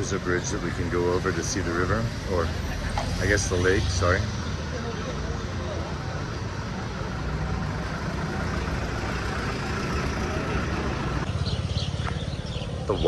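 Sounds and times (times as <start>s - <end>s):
vehicle engine rumbling: 0.0s - 13.0s
bird chirps: 11.2s - 13.0s.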